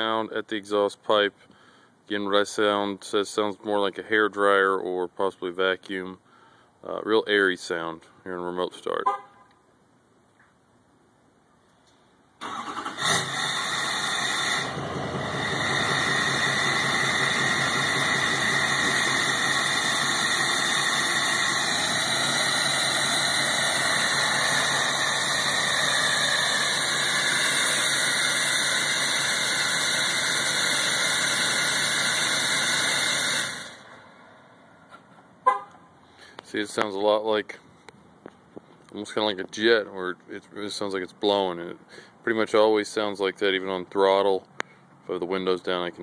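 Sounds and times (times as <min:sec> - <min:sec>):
diesel engine starting and idling: 0:12.4 - 0:34.6.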